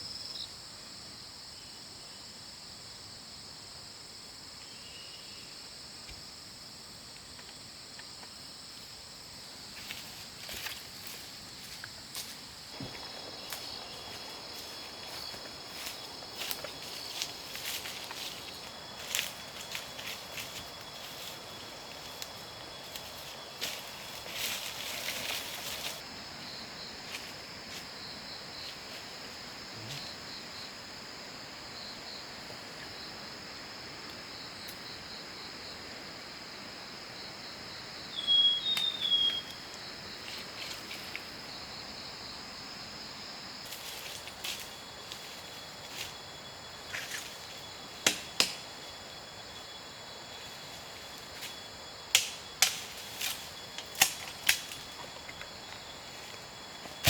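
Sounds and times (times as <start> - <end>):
insects trilling: 0.0 - 57.0
bird chirps: 38.2 - 39.6.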